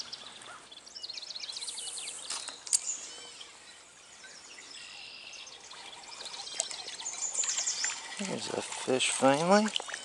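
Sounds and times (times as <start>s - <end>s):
songbirds calling: 0.0s - 10.0s
stream hiss: 1.5s - 4.2s, 5.7s - 10.0s.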